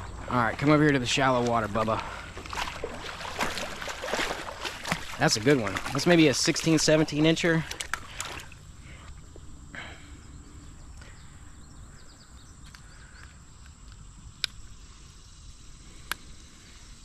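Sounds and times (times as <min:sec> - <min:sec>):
faint chirping: 0:08.1 - 0:17.0
sharp clicks: 0:12.7 - 0:14.6.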